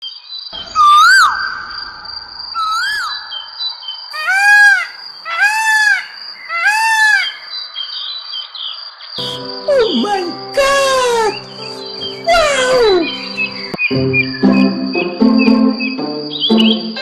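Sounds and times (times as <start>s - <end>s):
bird calls: 2.6s - 7.7s, 11.1s - 14.7s, 15.4s - 17.0s.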